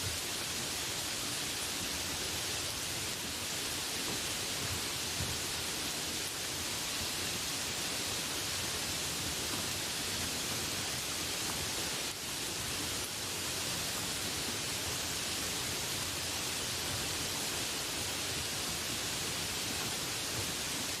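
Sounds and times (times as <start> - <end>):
steady rainfall: 0.0 - 21.0.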